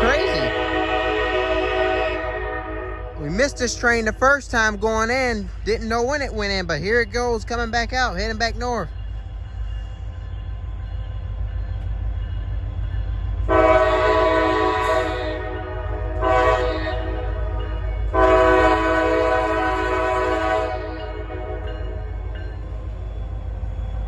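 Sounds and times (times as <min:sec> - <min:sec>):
locomotive horn blasts: 0:00.0 - 0:04.4, 0:13.5 - 0:21.7
train rumbling past: 0:00.0 - 0:24.0.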